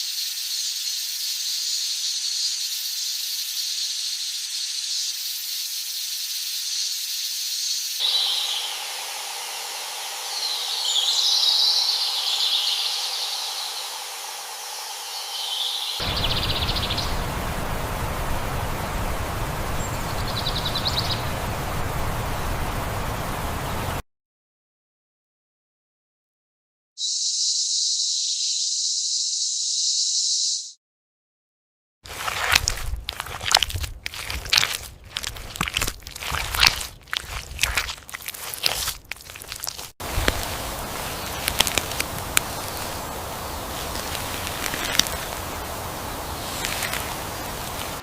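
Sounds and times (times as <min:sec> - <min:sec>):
steady high hiss: 0:00.0 - 0:24.0, 0:40.0 - 0:48.0
chirping calls: 0:07.6 - 0:17.3, 0:19.7 - 0:21.5
broad rushing noise: 0:15.9 - 0:24.0, 0:32.1 - 0:48.0.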